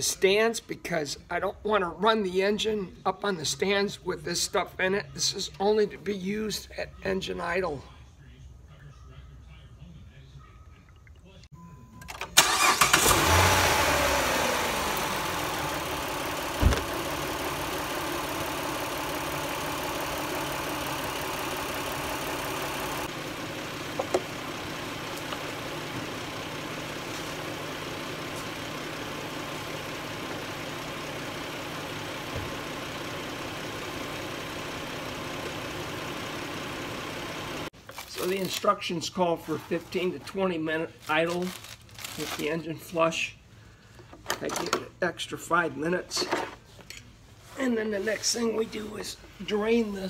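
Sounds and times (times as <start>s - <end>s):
car engine idling: 12.4s - 37.7s.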